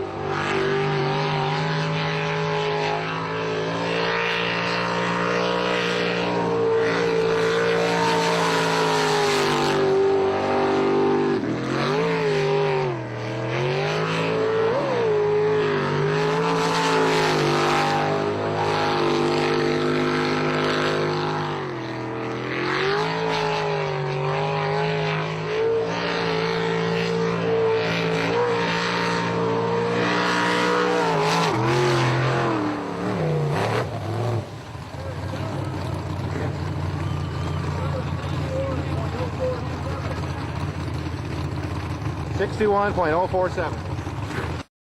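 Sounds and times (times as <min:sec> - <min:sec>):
motorboat engine running: 0:00.0 - 0:44.7.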